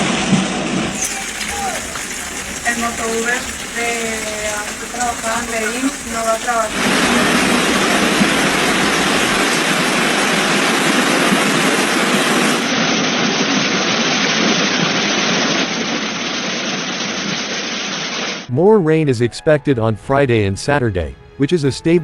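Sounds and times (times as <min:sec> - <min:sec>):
rushing water: 0:00.7 - 0:13.0.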